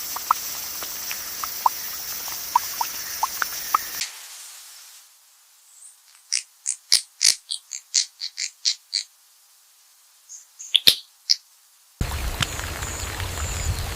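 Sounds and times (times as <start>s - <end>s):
sharp high animal chirps: 0.0s - 4.0s, 5.8s - 9.1s, 10.3s - 11.4s
steady high hiss: 0.0s - 13.9s.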